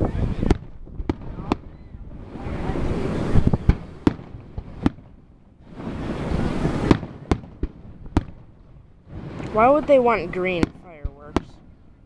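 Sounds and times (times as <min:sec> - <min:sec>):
fireworks bangs: 0:00.0 - 0:12.0
fireworks hissing: 0:02.1 - 0:05.0, 0:05.6 - 0:08.2, 0:09.0 - 0:10.7.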